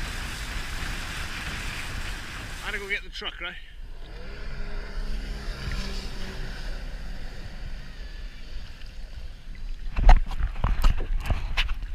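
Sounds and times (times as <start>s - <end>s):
wind noise on microphone: 0.0s - 2.6s, 9.8s - 11.9s
jetski engine running: 3.8s - 11.3s.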